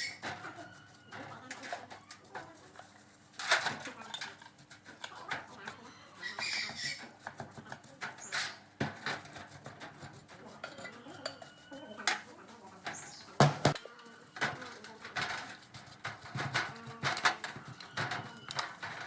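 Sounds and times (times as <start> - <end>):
metal tools clinking and knocking: 3.4 - 5.8, 10.6 - 12.2, 16.3 - 19.0.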